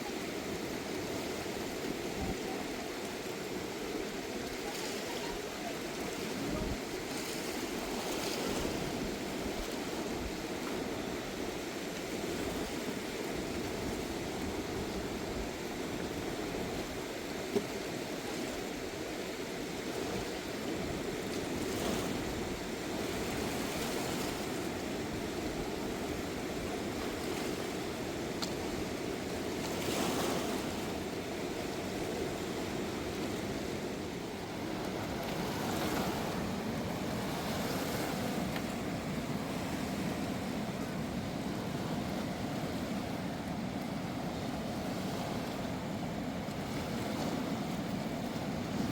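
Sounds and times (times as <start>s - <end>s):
river water rushing: 0.0s - 48.9s
water swishes: 0.0s - 48.9s.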